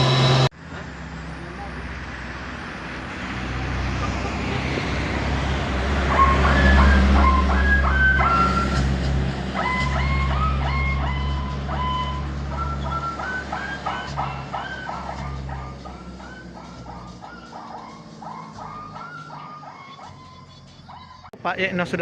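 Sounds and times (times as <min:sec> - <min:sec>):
musical reversing alarm: 0:00.0 - 0:00.5, 0:05.0 - 0:21.3
diesel truck engine running: 0:00.0 - 0:21.4.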